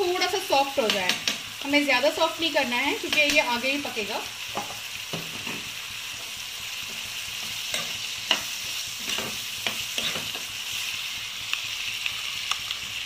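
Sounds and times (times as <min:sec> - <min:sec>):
vegetables sizzling in hot oil: 0:00.0 - 0:13.0
metal spoon scraping and tapping pan: 0:00.8 - 0:01.5, 0:03.0 - 0:03.5, 0:06.9 - 0:10.5.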